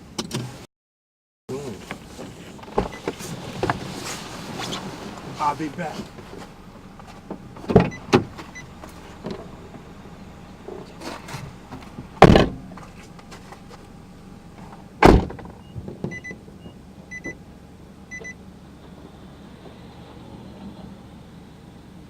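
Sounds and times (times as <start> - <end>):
car door shutting: 1.8 - 9.9, 10.6 - 14.0, 14.6 - 17.3
short electronic beeps: 15.6 - 17.4, 18.1 - 18.4.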